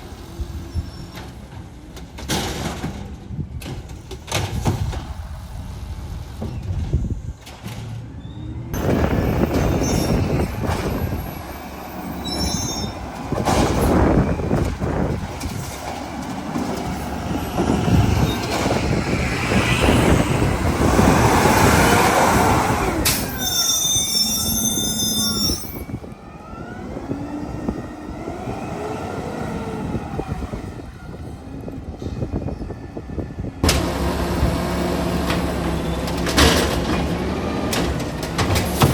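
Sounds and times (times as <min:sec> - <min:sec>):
garbage truck engine rumbling: 0:00.0 - 0:38.9
metal squealing and whining: 0:08.2 - 0:31.4.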